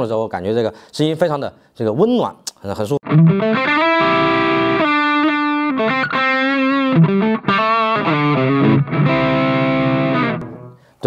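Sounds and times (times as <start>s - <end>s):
overdriven electric guitar notes: 3.0s - 10.8s.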